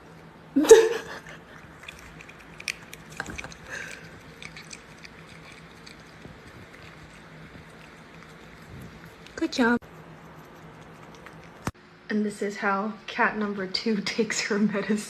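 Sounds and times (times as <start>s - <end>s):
cat chewing and biting: 1.1s - 11.8s
small wet clicks: 1.6s - 9.5s.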